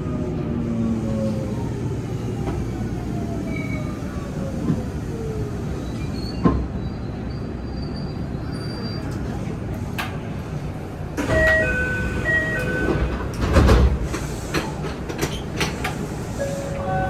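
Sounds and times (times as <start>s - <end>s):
wheel and rail running noise: 8.5s - 17.0s
train inverter whining: 9.7s - 17.0s.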